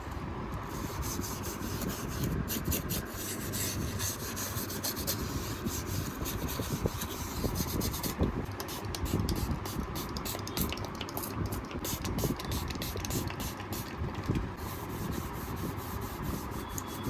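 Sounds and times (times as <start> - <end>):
sanding scraping on phone part: 0.6 - 10.6, 14.6 - 17.0.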